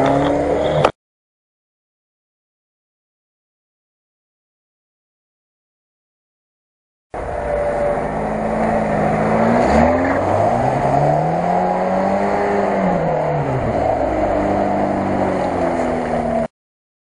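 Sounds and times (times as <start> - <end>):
car engine revving under load: 0.0 - 1.0, 7.2 - 16.5.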